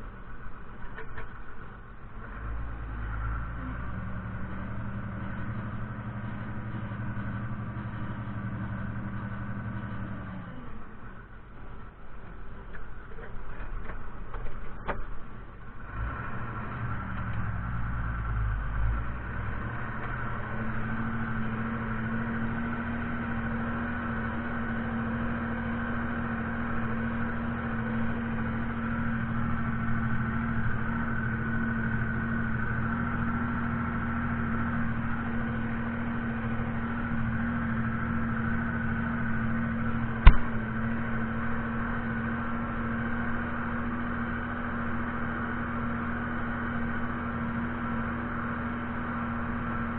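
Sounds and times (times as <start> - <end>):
tractor diesel engine running: 0.0 - 49.9
sharp click: 40.2 - 40.5.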